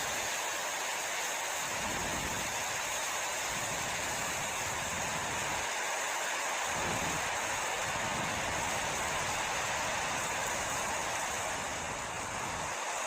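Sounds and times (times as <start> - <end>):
gusty wind blowing: 6.6 - 13.0
wind buffeting microphone: 6.7 - 9.4.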